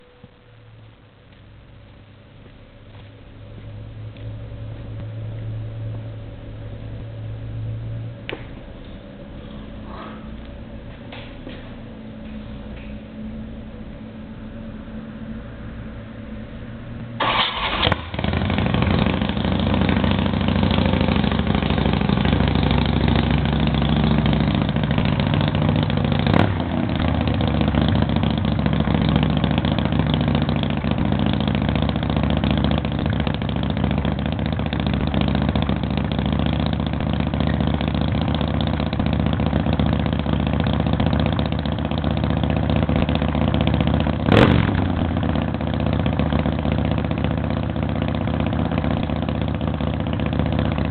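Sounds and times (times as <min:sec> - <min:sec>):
motorcycle engine starting and running: 0:02.4 - 0:50.9.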